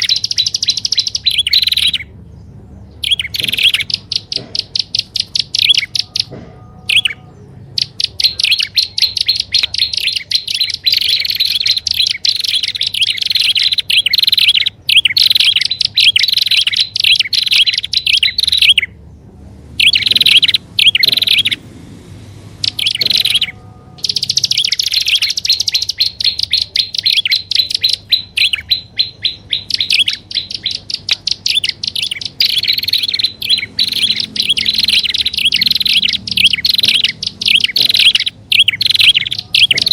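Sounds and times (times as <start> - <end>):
bird chattering calls: 0.0 - 19.0, 19.8 - 21.8, 22.5 - 39.9.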